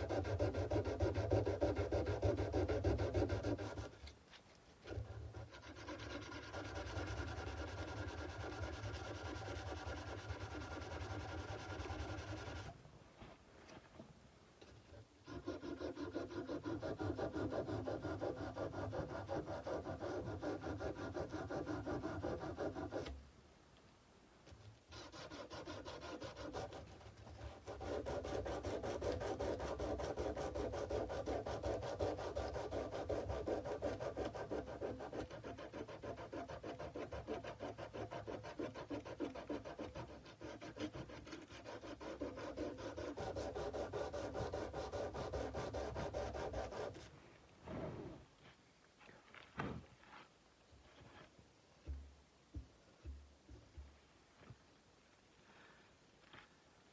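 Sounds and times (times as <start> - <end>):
sandpaper rubbing steel blade: 5.3 - 12.7, 15.2 - 23.1, 24.9 - 47.1.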